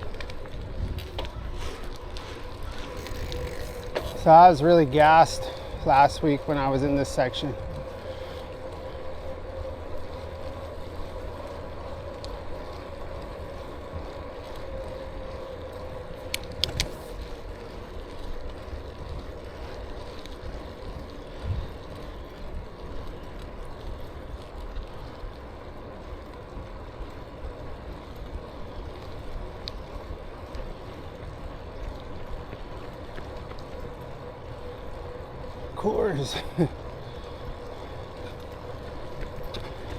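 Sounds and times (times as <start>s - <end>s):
electric motor whine: 0.0s - 23.4s
tyre and wind rumble: 0.0s - 39.9s.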